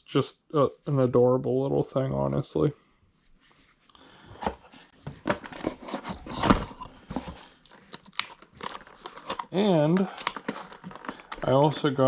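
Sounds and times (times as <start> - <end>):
packaging rustling: 5.0 - 12.0.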